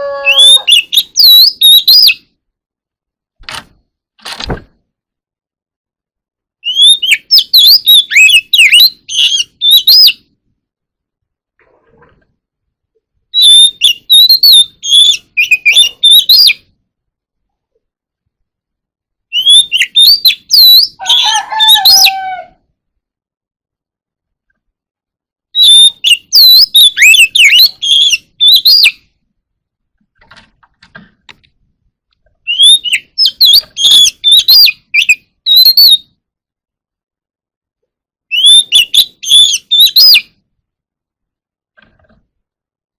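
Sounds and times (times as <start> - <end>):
bird singing whistled notes: 0.0 - 2.3, 6.6 - 10.2, 13.3 - 16.7, 19.3 - 21.0, 25.6 - 29.0, 32.5 - 36.1, 38.3 - 40.3.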